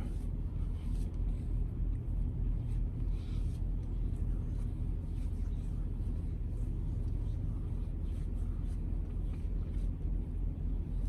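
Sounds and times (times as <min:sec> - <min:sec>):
diesel engine idling: 0:00.0 - 0:11.0
faint rubbing sounds: 0:00.0 - 0:11.0.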